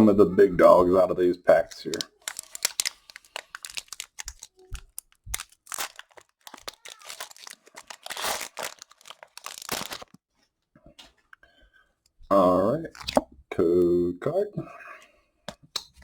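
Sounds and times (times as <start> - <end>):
foil wrapper crinkling and tearing: 1.9 - 10.2.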